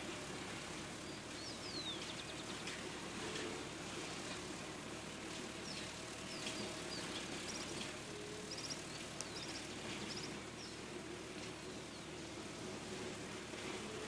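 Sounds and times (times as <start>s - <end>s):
outdoor noise with low hum: 0.0s - 14.0s
small birds chirping: 0.9s - 2.8s, 5.5s - 10.9s, 11.6s - 12.3s.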